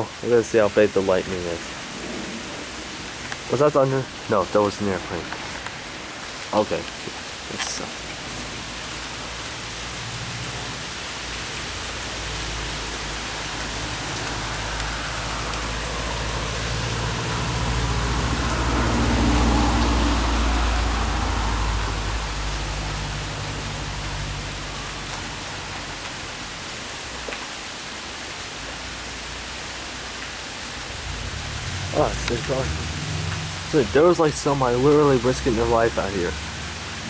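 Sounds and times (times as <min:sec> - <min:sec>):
steady rain: 0:00.0 - 0:37.0
low drone: 0:30.8 - 0:36.7.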